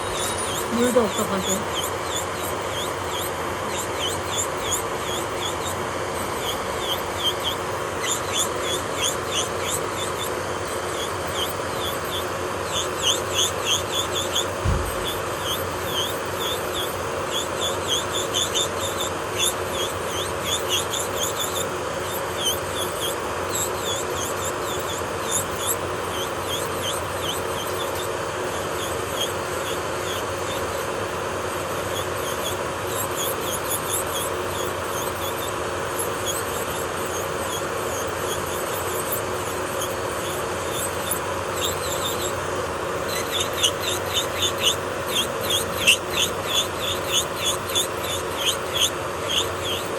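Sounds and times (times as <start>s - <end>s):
high-pitched squeaks: 0.0s - 10.3s, 43.0s - 49.9s
electric nail drill humming: 0.0s - 49.9s.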